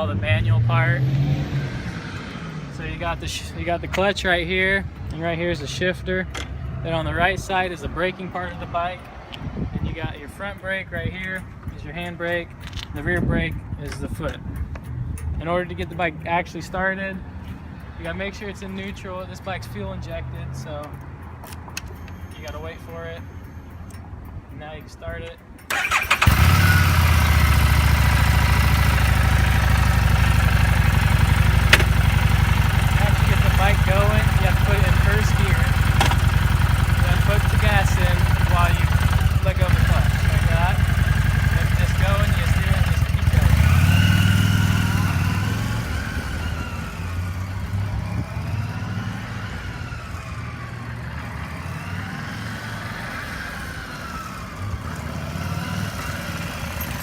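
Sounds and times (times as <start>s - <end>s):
motorcycle engine idling: 25.7s - 45.6s, 55.9s - 57.0s
sharp click: 31.7s - 32.1s.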